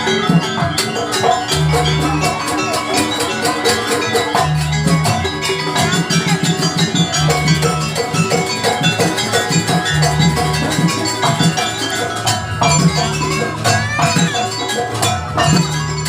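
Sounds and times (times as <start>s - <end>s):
drums beating: 0.0s - 16.0s.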